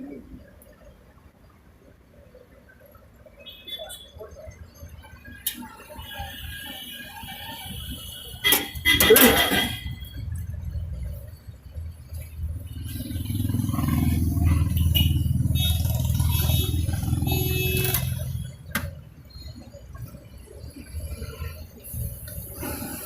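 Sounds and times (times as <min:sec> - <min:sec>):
vehicle engine rumbling past: 0:10.1 - 0:19.3.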